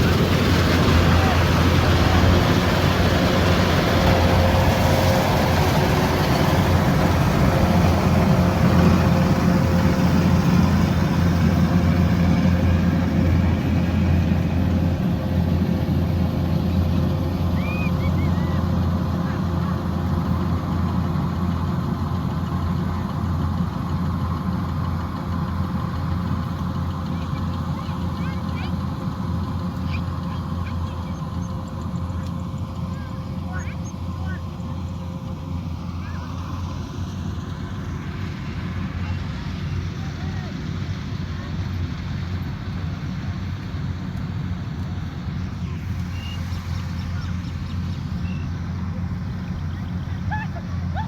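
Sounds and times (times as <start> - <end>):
combine harvester running: 0.0 - 51.0.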